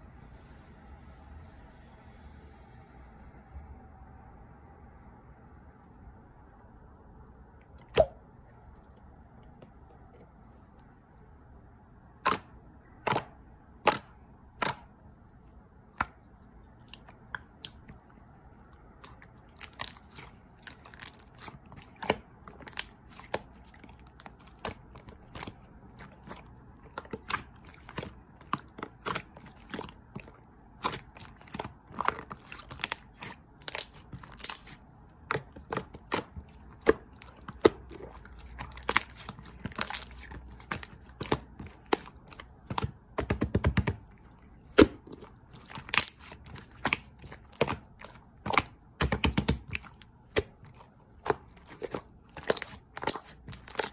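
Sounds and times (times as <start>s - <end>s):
slime squished by hand: 7.8s - 8.2s, 12.2s - 15.0s, 15.8s - 53.9s.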